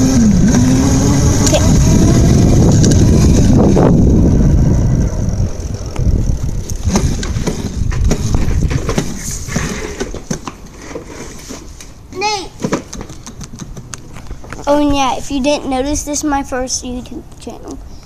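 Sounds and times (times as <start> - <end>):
dirt bike engine running: 0.0 - 9.2.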